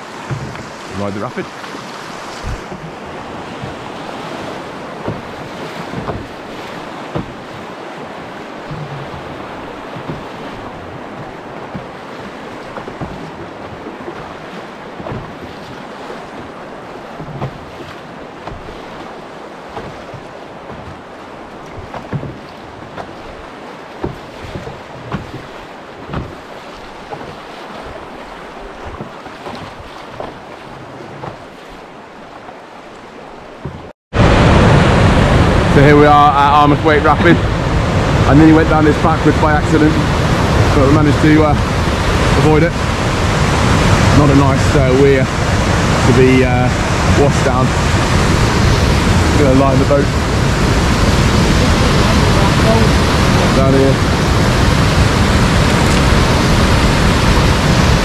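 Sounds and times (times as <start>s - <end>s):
river rapid rushing: 0.0s - 58.0s
wind buffeting microphone: 2.2s - 31.4s, 33.6s - 58.0s
short knocks: 5.0s - 6.5s, 7.1s - 7.6s, 15.0s - 19.1s, 19.7s - 28.0s.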